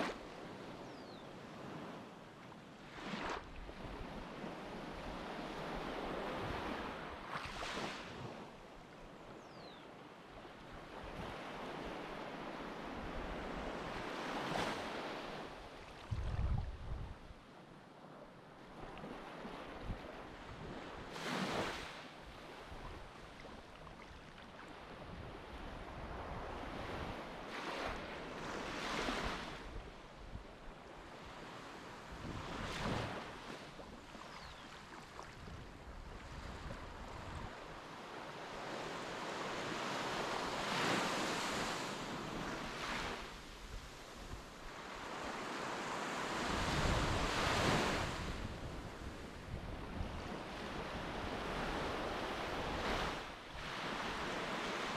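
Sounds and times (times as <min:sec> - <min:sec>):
wind buffeting microphone: 0:16.1 - 0:17.3.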